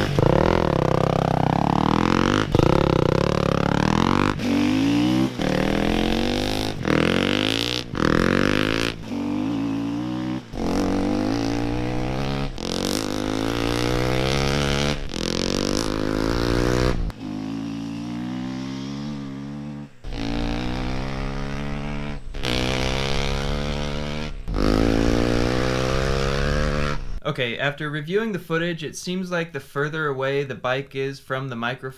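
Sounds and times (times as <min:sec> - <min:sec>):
dirt bike accelerating hard: 0:00.0 - 0:27.2.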